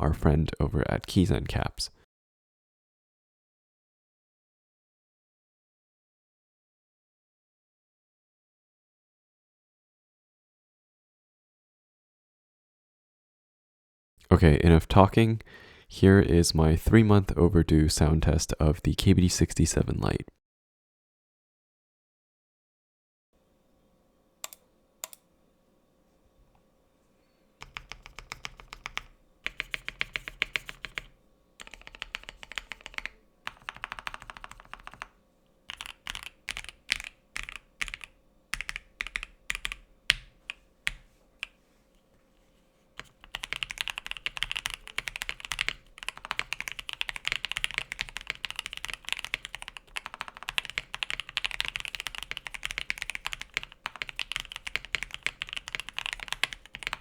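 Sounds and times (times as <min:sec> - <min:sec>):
mechanical keyboard typing: 0:27.6 - 0:35.1, 0:35.7 - 0:41.0, 0:43.0 - 0:57.0.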